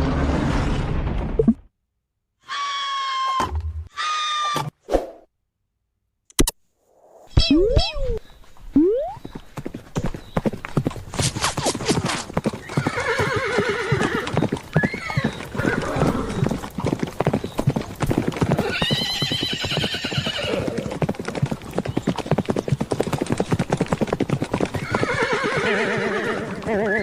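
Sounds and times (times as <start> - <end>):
horses galloping: 8.5 - 27.0
horse whinnies: 12.6 - 16.6, 18.4 - 21.0, 24.7 - 27.0.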